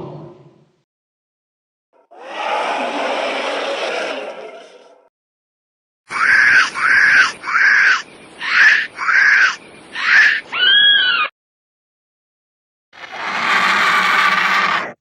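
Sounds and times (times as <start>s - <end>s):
shrill screeching creature calls: 2.1s - 3.8s, 6.1s - 11.3s, 13.0s - 15.0s.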